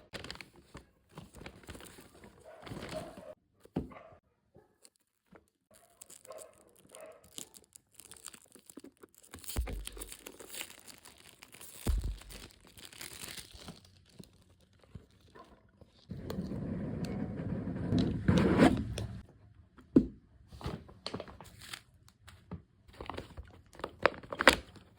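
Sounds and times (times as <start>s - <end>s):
packaging torn and crinkled: 0.0s - 0.6s, 4.8s - 15.3s, 23.1s - 24.9s.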